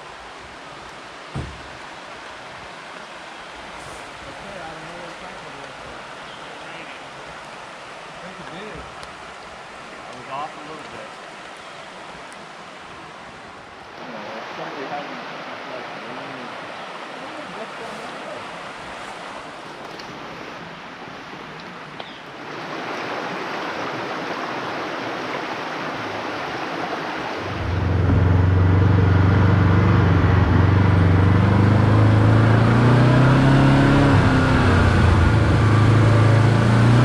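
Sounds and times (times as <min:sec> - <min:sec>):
utility vehicle engine running: 0:27.4 - 0:37.0.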